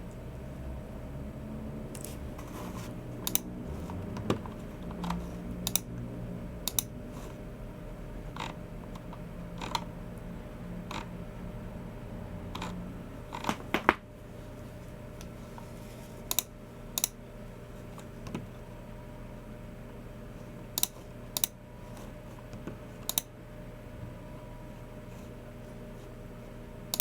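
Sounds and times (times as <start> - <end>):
faint steady hum: 0.0 - 27.0
keyboard and mouse clicks: 3.2 - 5.9, 20.8 - 21.6.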